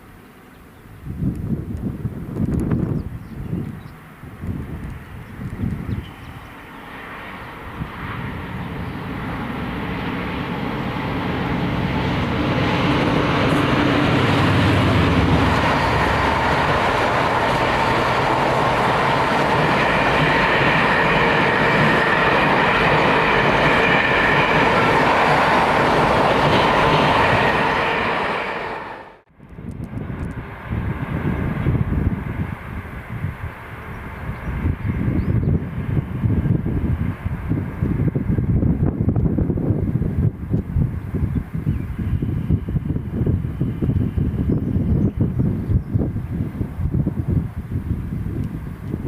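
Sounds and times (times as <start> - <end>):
freight train locomotive: 0.0 - 49.0
train wagons rumbling: 4.2 - 29.2.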